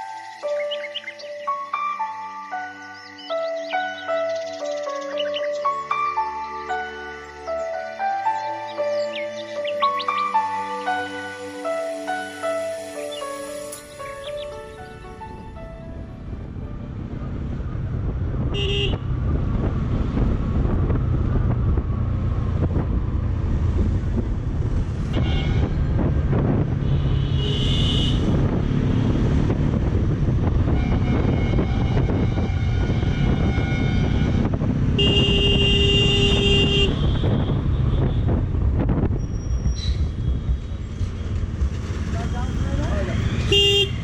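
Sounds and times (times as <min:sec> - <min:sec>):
motorcycle engine and wind rumble: 0:13.7 - 0:44.0
vehicle horns honking: 0:18.5 - 0:19.0, 0:25.2 - 0:26.0, 0:26.8 - 0:28.5, 0:30.6 - 0:38.4, 0:43.2 - 0:44.0.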